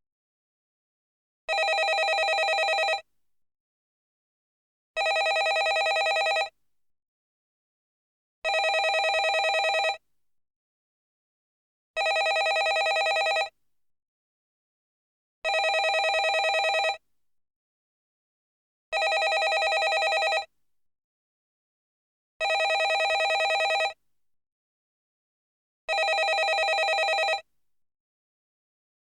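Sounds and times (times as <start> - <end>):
telephone bell ringing: 1.5 - 3.0, 5.0 - 6.5, 8.5 - 10.0, 12.0 - 13.5, 15.5 - 17.0, 19.0 - 20.5, 22.4 - 24.0, 25.9 - 27.4.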